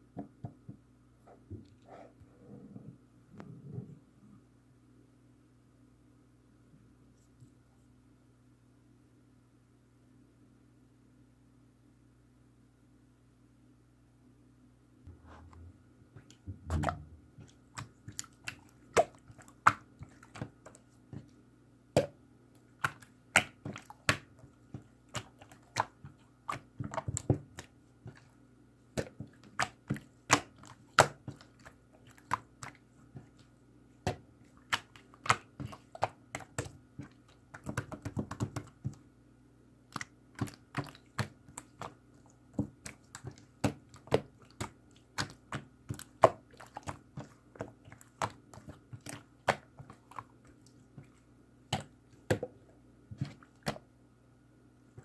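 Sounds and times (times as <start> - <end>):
hands kneading slime: 15.1 - 54.1.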